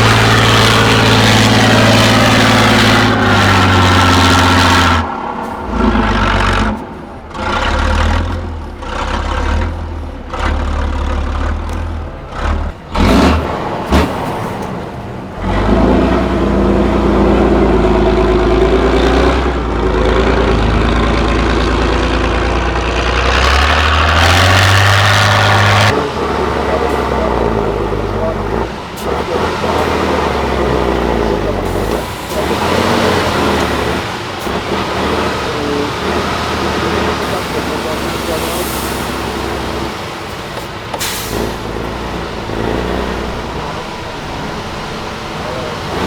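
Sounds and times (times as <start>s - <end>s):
truck diesel engine revving: 0.0s - 46.0s
compressed air hiss: 40.6s - 41.6s.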